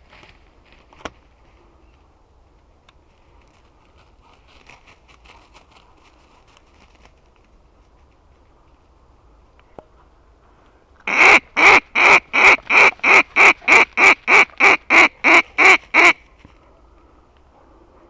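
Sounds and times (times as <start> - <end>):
duck quacking: 11.1 - 16.2.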